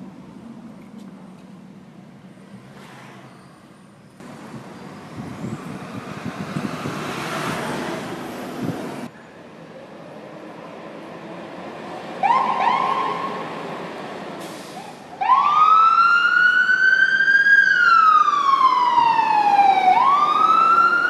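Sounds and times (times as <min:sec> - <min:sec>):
siren wailing: 0:12.2 - 0:13.4, 0:15.2 - 0:21.0
siren chirps: 0:12.2 - 0:13.5, 0:15.2 - 0:21.0.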